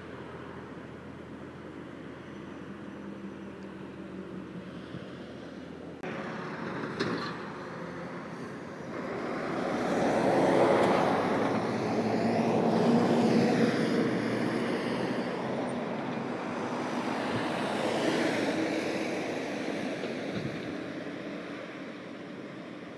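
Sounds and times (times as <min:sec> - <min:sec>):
vehicle passing: 0:06.0 - 0:20.2.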